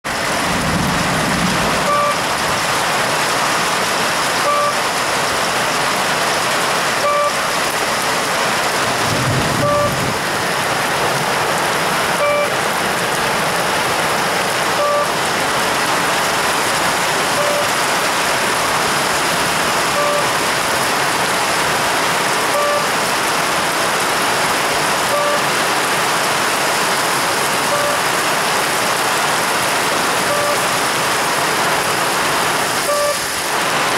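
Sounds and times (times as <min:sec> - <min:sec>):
heavy rain hissing: 0:00.1 - 0:33.9
short beep: 0:01.8 - 0:02.2, 0:04.4 - 0:04.8, 0:07.0 - 0:07.4, 0:09.6 - 0:10.0, 0:12.2 - 0:12.5, 0:14.8 - 0:15.1, 0:17.4 - 0:17.7, 0:20.0 - 0:20.3, 0:22.5 - 0:22.9, 0:25.1 - 0:25.4, 0:27.7 - 0:28.0, 0:30.3 - 0:30.6, 0:32.8 - 0:33.2.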